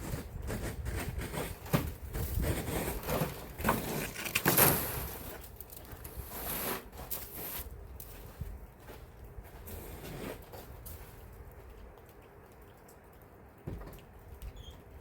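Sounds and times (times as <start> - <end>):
slushy snow scraped off car: 0.0 - 5.4, 6.2 - 7.7.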